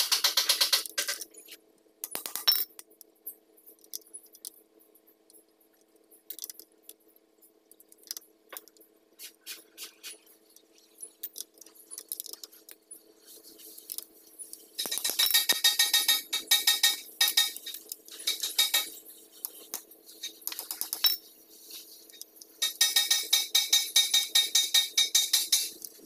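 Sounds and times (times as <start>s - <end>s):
faint steady hum: 0.0s - 26.0s
metal rattle: 14.8s - 19.0s.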